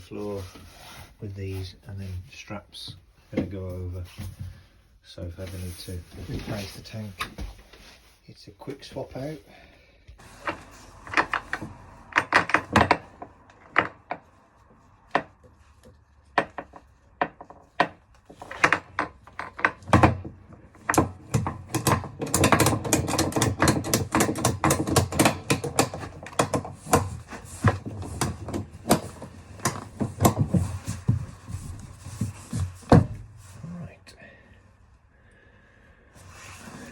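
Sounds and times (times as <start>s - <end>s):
sharp clicks and knocks: 10.2s - 33.3s.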